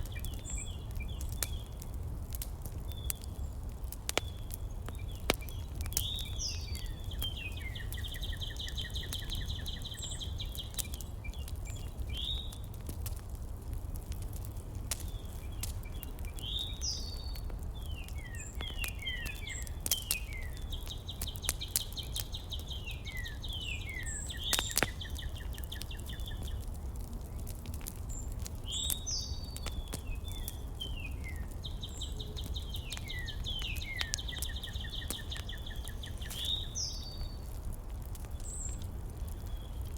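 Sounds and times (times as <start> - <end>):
songbird singing whistles and trill: 5.0 - 12.6, 15.1 - 26.6, 28.6 - 37.4.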